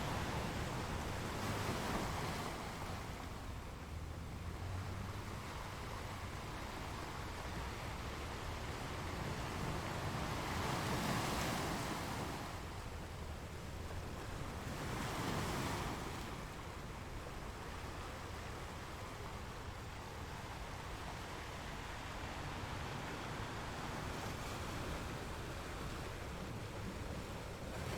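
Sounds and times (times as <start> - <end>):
ocean waves washing in: 15.8 - 27.9.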